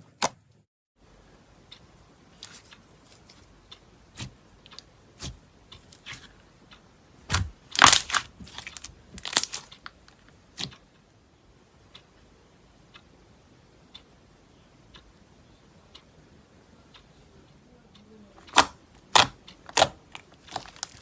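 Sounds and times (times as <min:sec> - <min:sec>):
slime crackling crunches: 0:07.3 - 0:09.8, 0:18.5 - 0:21.0.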